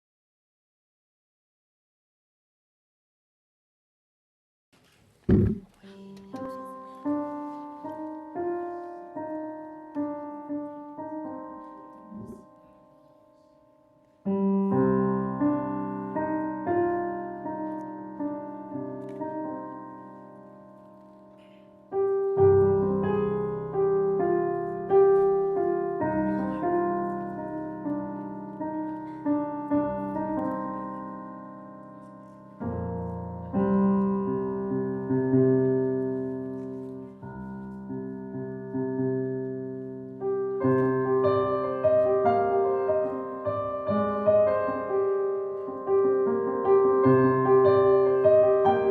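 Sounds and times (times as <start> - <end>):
solo piano chords and melody: 5.3 - 48.9.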